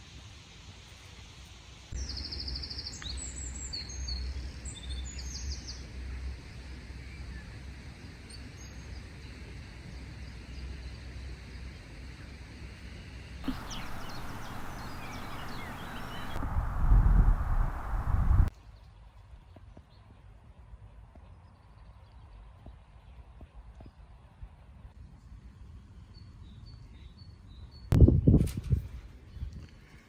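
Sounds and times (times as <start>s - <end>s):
low outdoor rumble: 13.4s - 18.5s
small birds chirping and trilling: 13.4s - 18.5s.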